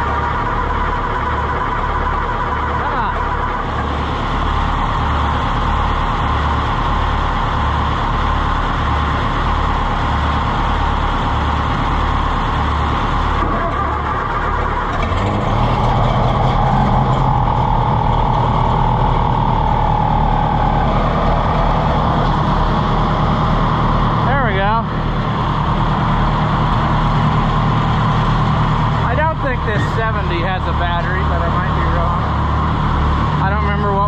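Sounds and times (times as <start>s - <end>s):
tractor engine running: 0.0s - 34.0s
tractor engine cranking: 12.2s - 33.7s.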